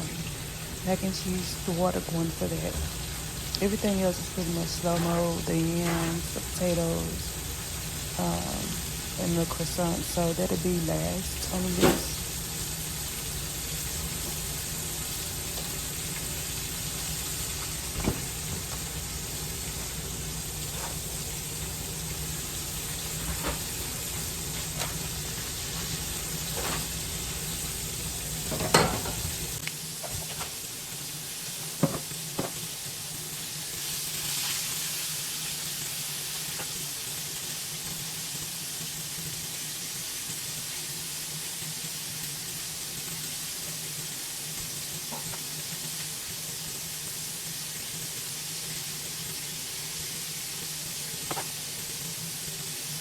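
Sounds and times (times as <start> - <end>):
meat sizzling in a pan: 0.0 - 53.0
utensil knocking on pan: 31.8 - 32.6.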